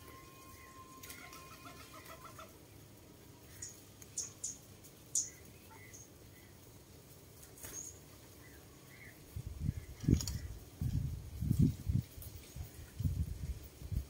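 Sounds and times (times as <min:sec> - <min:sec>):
bird clucking notes: 0:00.6 - 0:02.6
sharp high bird chirps: 0:03.5 - 0:06.1.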